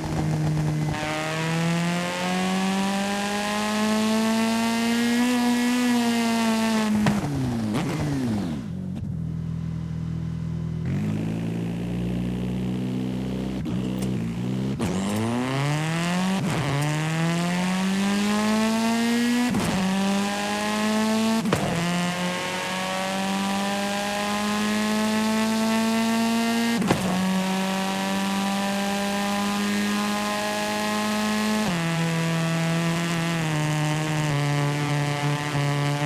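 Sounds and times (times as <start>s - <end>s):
simulated car engine accelerating: 0.0s - 36.0s
gear shift click: 13.6s - 15.4s.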